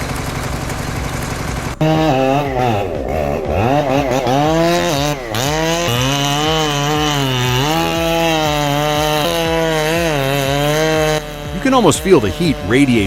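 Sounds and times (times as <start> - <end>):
chainsaw revving and bogging: 0.0 - 13.0.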